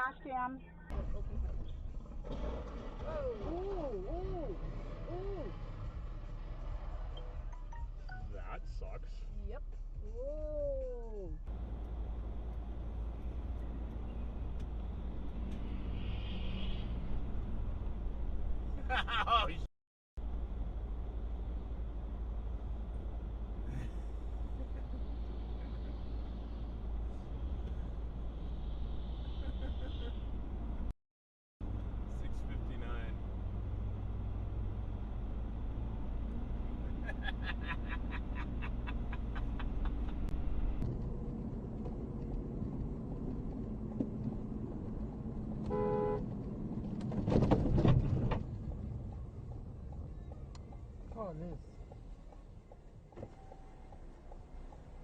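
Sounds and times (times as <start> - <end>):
road and engine noise inside car: 0.0 - 19.6, 20.2 - 30.9, 31.6 - 55.0
car horn toot: 45.7 - 46.2.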